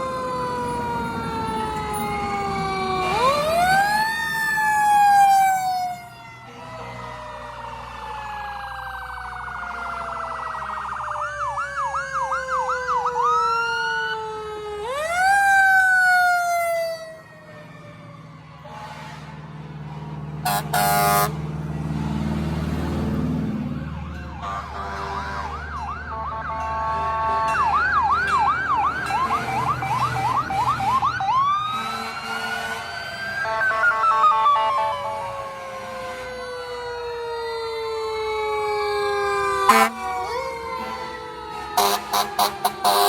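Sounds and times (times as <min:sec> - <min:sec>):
fire engine sirens wailing: 0:00.0 - 0:43.0
horn blast: 0:18.6 - 0:19.5, 0:20.4 - 0:21.4, 0:24.4 - 0:28.4, 0:31.7 - 0:35.0, 0:39.7 - 0:43.0.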